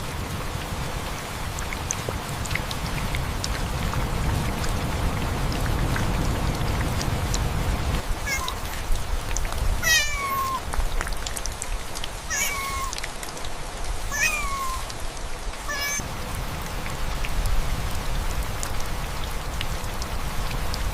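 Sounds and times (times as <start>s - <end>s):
rain patter: 0.0s - 20.9s
cat meowing: 8.3s - 8.8s, 9.8s - 10.6s, 12.3s - 13.0s, 14.1s - 14.9s, 15.6s - 16.0s.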